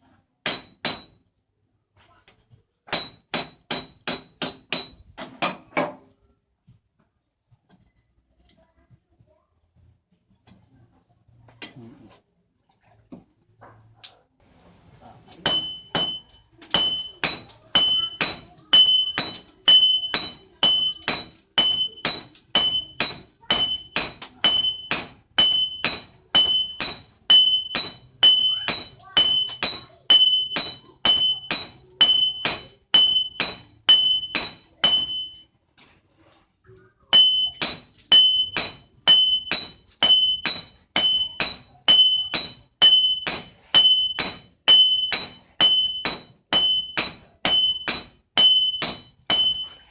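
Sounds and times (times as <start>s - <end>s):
hammer striking steel on anvil: 0.4s - 1.2s, 2.9s - 5.6s, 15.4s - 35.4s, 37.1s - 49.9s.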